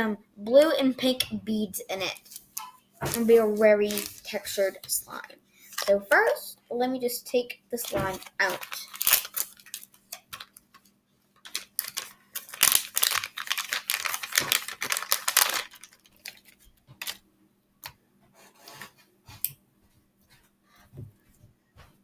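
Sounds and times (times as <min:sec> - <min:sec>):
plastic packaging crinkling: 0:02.1 - 0:04.8, 0:05.7 - 0:06.4, 0:07.8 - 0:10.8, 0:11.4 - 0:17.2.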